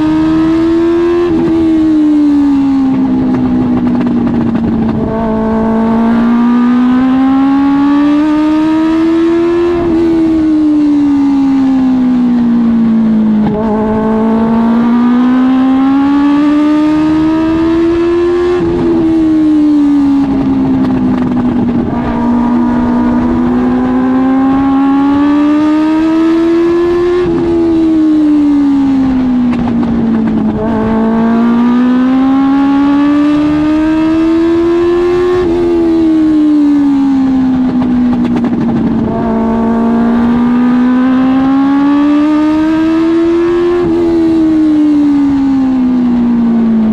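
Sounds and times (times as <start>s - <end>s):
race car engine: 0.0s - 46.9s.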